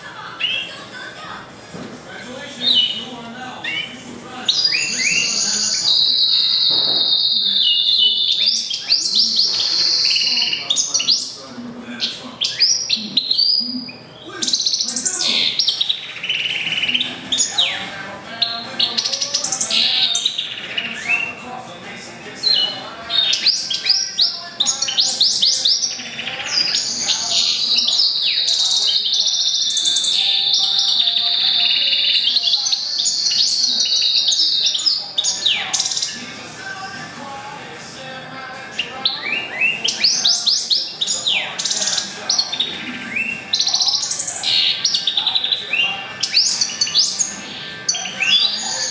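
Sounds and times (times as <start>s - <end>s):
finch singing with trills: 2.6s - 37.0s, 38.6s - 48.9s.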